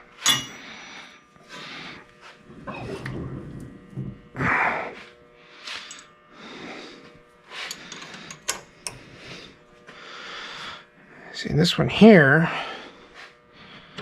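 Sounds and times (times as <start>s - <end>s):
metal tools clicking and scraping: 0.2s - 0.7s, 5.8s - 6.1s, 7.5s - 9.0s.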